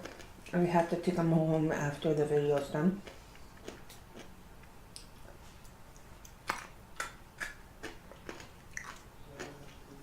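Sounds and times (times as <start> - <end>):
person chewing: 3.0 - 10.0.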